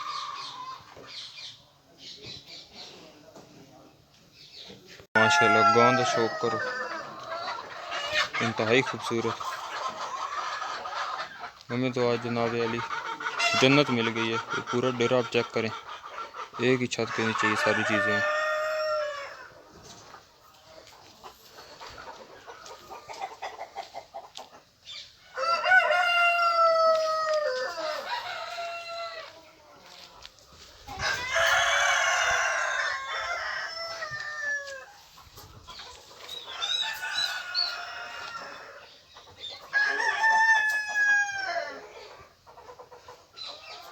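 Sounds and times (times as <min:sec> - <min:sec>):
roosters crowing: 0:00.0 - 0:01.2, 0:05.2 - 0:19.9, 0:25.1 - 0:30.1, 0:30.8 - 0:42.4
hens clucking softly: 0:05.5 - 0:43.9.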